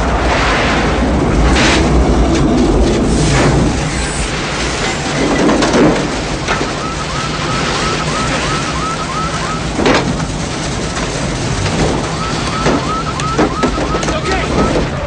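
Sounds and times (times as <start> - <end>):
heavy storm wind: 0.0 - 15.0
electronic alarm chirping: 6.5 - 9.8, 12.1 - 14.6.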